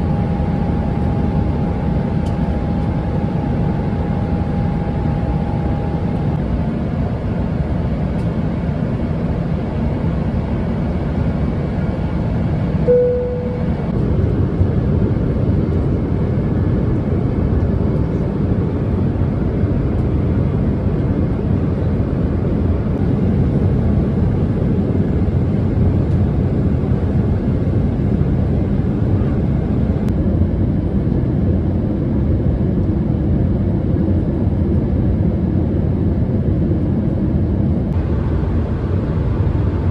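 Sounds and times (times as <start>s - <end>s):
airliner cabin noise: 0.0s - 31.6s, 34.6s - 39.9s
short single tone: 12.8s - 14.0s.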